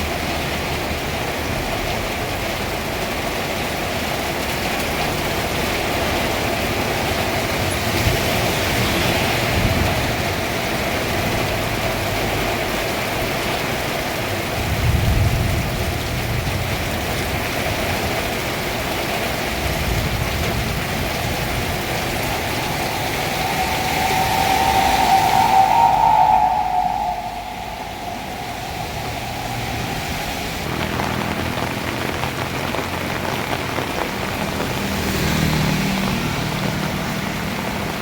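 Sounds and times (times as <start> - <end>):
heavy rain pouring: 0.0 - 38.0
low rumbling: 20.1 - 34.8.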